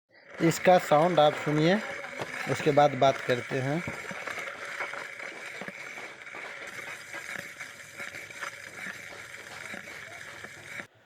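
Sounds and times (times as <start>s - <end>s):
brake pad scraping rotor: 0.2s - 10.9s.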